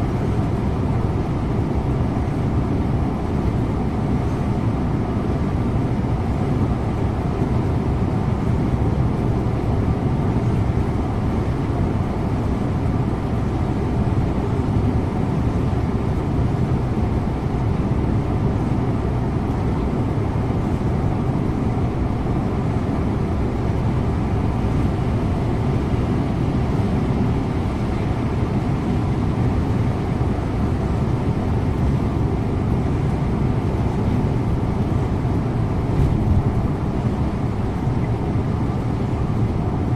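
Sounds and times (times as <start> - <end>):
bus engine drone: 0.0 - 39.9
tyre and road noise: 31.5 - 38.8.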